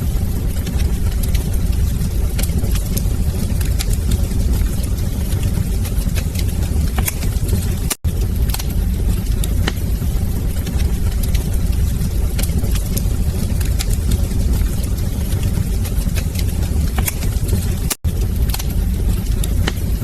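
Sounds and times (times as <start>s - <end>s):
low rumble of fire: 0.0s - 20.0s
wood fire crackling and popping: 0.0s - 20.0s.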